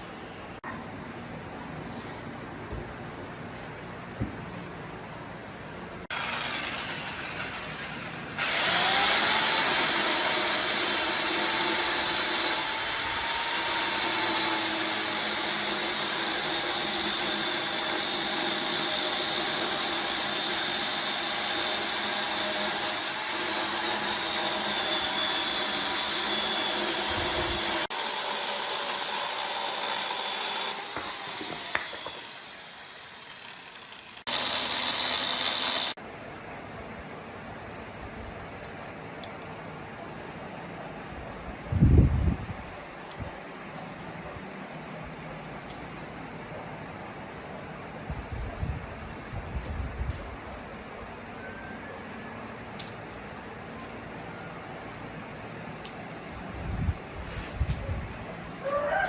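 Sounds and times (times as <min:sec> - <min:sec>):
electric power tool whining: 0:06.1 - 0:36.0.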